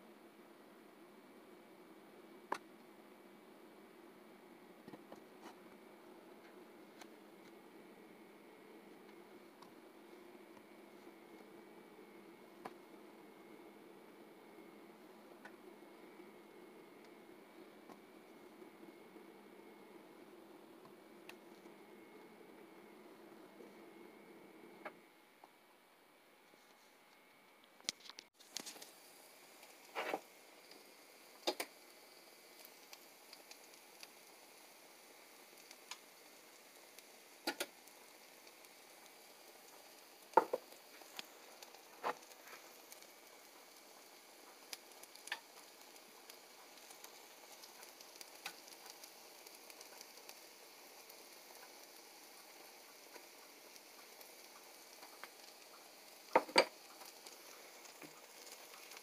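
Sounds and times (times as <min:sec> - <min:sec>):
mushroom sizzling in skillet: 0:28.3 - 0:59.0
sharp clicks and pops: 0:29.6 - 0:31.8, 0:37.0 - 0:39.1, 0:39.7 - 0:59.0.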